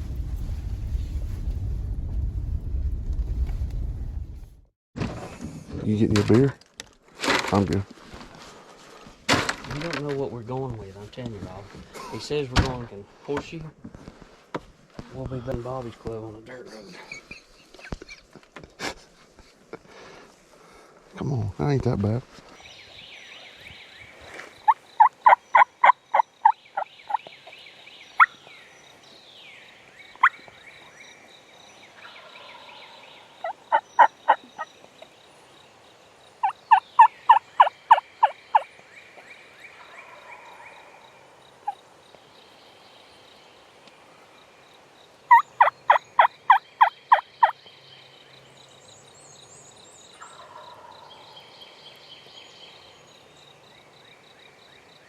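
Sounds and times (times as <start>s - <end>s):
faint songbirds: 7.5s - 55.0s
turkey yelping: 25.0s - 26.2s, 32.0s - 34.7s, 36.4s - 38.6s, 45.3s - 47.5s.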